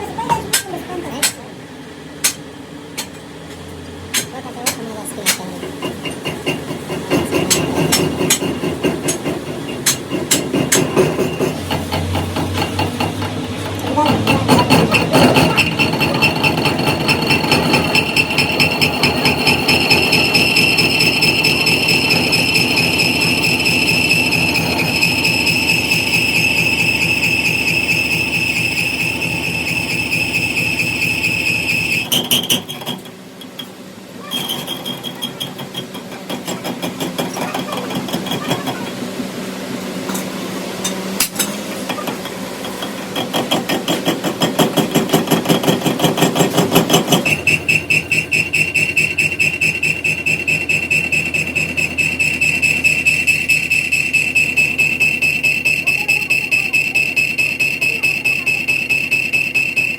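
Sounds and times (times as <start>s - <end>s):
machinery metallic knocking: 4.1s - 32.6s, 41.9s - 59.9s
machinery high whine: 10.8s - 32.5s, 45.4s - 59.9s.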